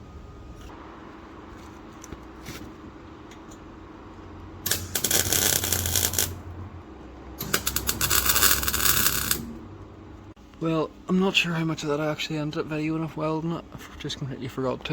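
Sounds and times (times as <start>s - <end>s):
welding arc crackling: 4.7s - 6.4s, 7.4s - 9.6s.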